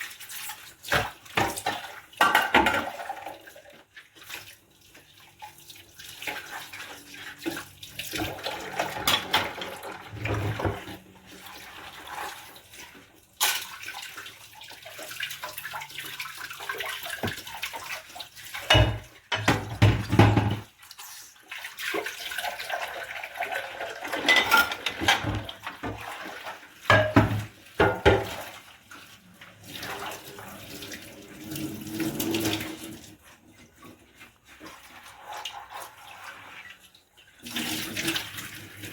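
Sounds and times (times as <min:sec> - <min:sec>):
tap water splashing in sink: 0:00.0 - 0:38.9.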